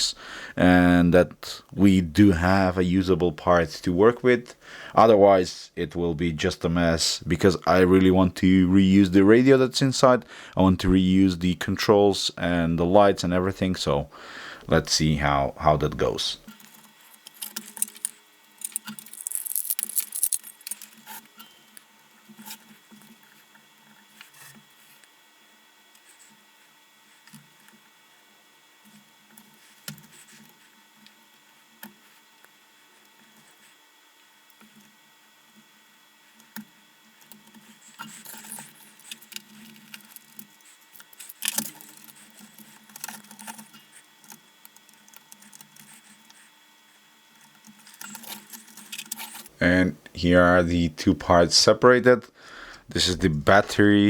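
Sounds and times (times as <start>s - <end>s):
scratchy rustling of parts: 16.0s - 21.6s, 37.2s - 46.6s, 47.3s - 49.6s.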